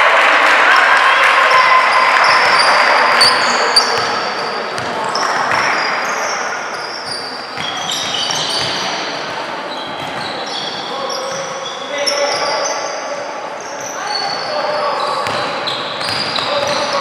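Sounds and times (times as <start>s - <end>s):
crowd voices: 0.0s - 17.0s
shoe squeaks: 2.2s - 4.5s, 5.1s - 16.9s
basketball bouncing on court: 2.4s - 5.6s, 7.6s - 9.1s, 9.9s - 10.4s, 15.2s - 17.0s.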